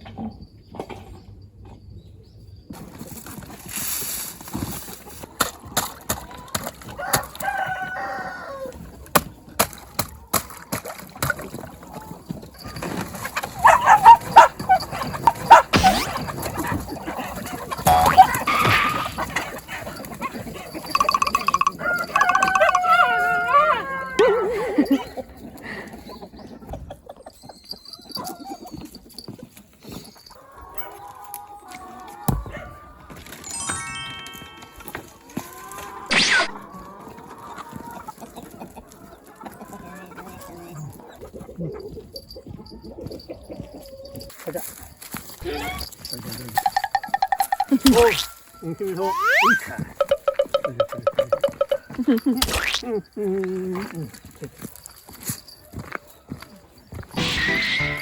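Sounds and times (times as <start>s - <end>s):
rooster crowing: 7.0s - 8.8s, 21.5s - 24.2s
faint high chirp: 20.9s - 22.8s
short chicken calls: 21.0s - 24.0s.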